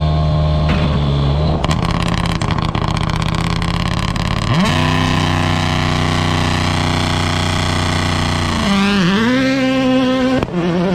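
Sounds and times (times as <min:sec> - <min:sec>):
rally car engine revving: 0:00.0 - 0:10.9
exhaust crackles and pops: 0:01.5 - 0:09.2.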